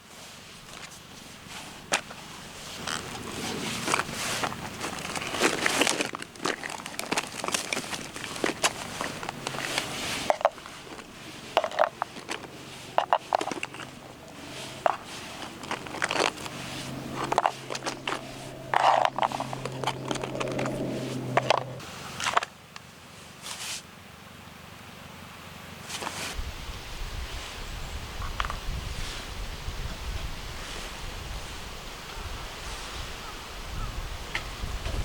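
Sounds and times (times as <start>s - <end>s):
objects being handled: 0.2s - 22.5s
low steady hum: 0.3s - 22.1s.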